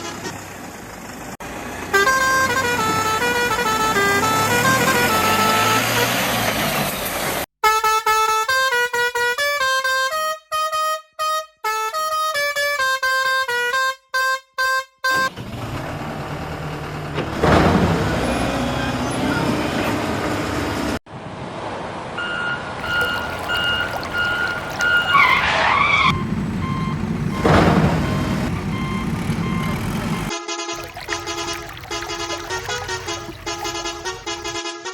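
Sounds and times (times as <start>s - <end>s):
horn honking: 1.8s - 6.4s, 22.8s - 34.9s
engine running: 26.1s - 30.3s.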